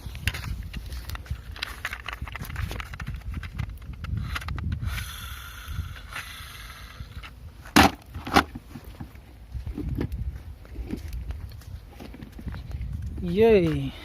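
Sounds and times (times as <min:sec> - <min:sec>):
rustling handling noise: 0:00.0 - 0:04.6.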